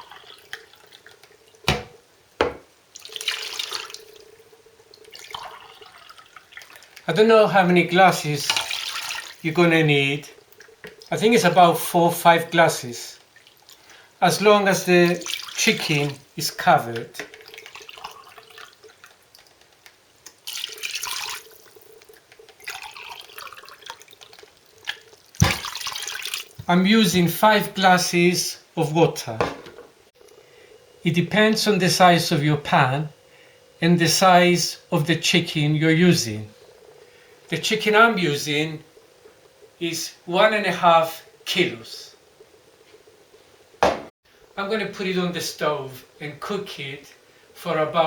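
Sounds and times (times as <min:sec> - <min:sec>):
water pouring into a pot: 0:00.0 - 0:01.6, 0:02.9 - 0:07.1, 0:07.8 - 0:12.0, 0:12.7 - 0:19.7, 0:20.3 - 0:26.7
sharp knocks: 0:01.7 - 0:02.7, 0:43.8 - 0:44.1.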